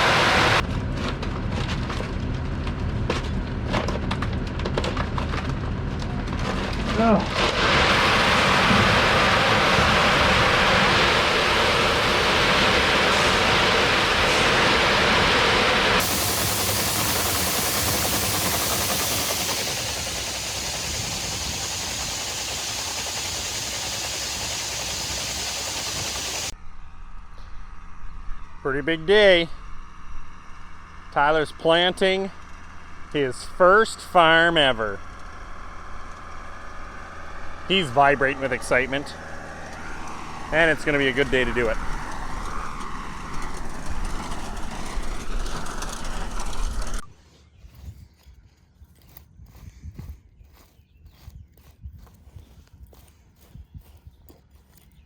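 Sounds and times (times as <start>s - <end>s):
loud even hiss: 0.0s - 0.6s, 7.3s - 26.5s
tractor engine rumble: 0.0s - 26.6s, 31.2s - 47.1s
vehicle engine and cab rumble: 30.3s - 47.1s.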